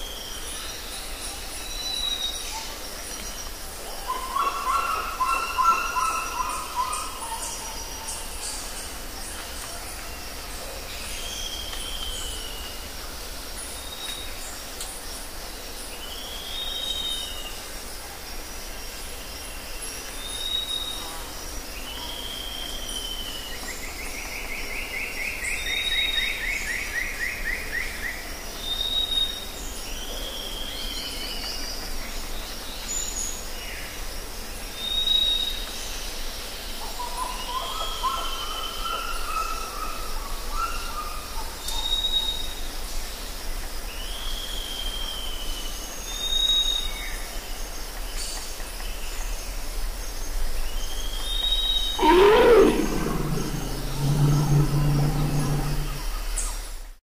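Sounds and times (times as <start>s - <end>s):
buzzy bird trill: 52.0s - 56.1s
slurred falling chirps: 52.0s - 56.2s
low warbling bird call: 52.0s - 56.3s.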